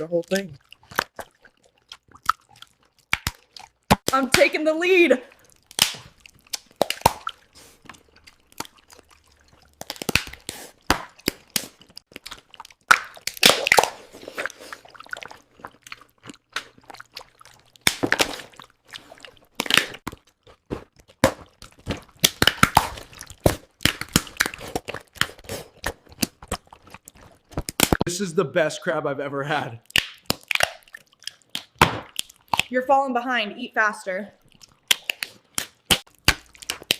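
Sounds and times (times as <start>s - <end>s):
crunching and chewing shells: 0.0s - 4.2s, 5.3s - 28.1s, 29.8s - 32.7s, 34.3s - 36.9s.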